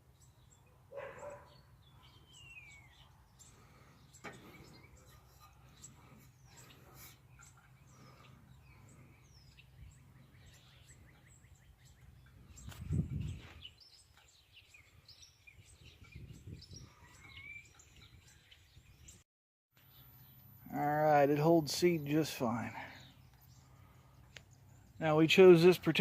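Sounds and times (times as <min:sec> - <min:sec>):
small birds chirping: 0:00.0 - 0:19.2, 0:19.8 - 0:26.0.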